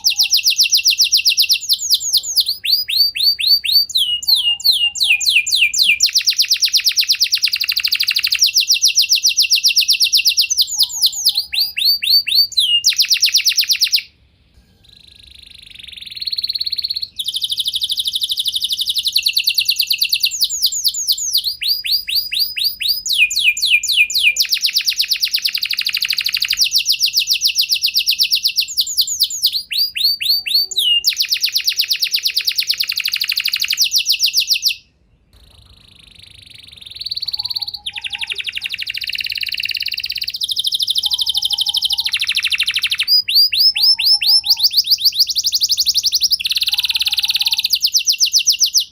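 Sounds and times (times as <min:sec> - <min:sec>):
canary singing trills: 0:00.0 - 0:14.1, 0:14.8 - 0:48.9.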